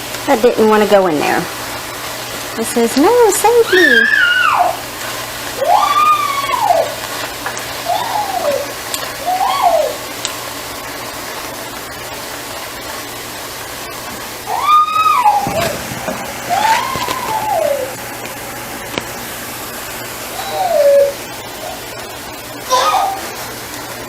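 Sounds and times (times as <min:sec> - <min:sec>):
spinach sizzling in oil: 0:00.0 - 0:24.0
high-pitched cries: 0:03.5 - 0:04.9, 0:05.6 - 0:07.0, 0:07.8 - 0:10.1, 0:14.4 - 0:15.7, 0:16.5 - 0:18.0, 0:20.3 - 0:21.9, 0:22.6 - 0:23.4.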